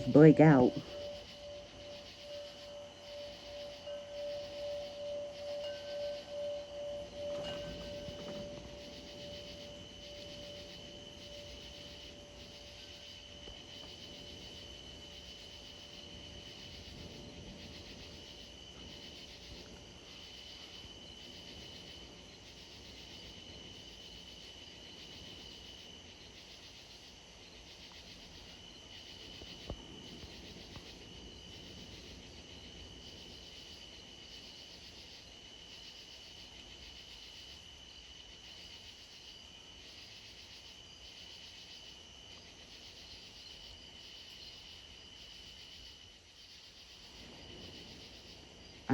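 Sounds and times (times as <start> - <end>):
low chime note: 0.0 - 10.5
crickets trilling: 0.0 - 48.9.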